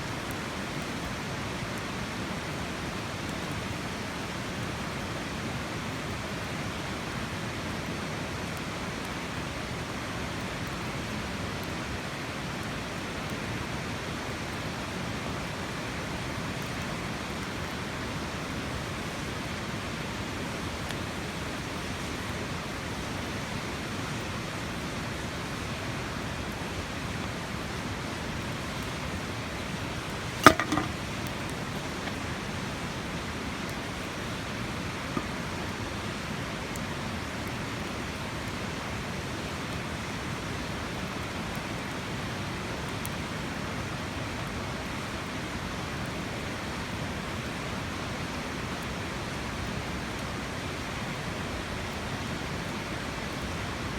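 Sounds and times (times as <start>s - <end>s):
sharp knock: 30.4s - 31.0s.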